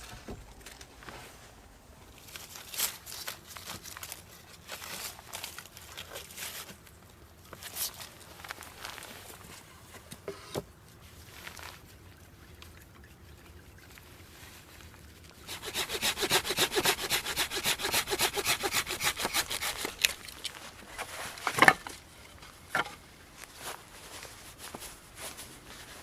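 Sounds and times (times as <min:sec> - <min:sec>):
hand saw cutting wood: 0:15.5 - 0:20.4.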